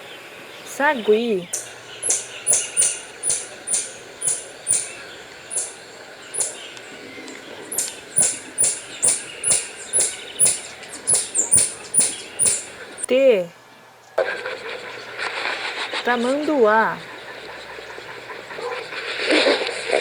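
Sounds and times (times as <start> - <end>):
marmoset high-pitched calls: 0.6 - 13.1.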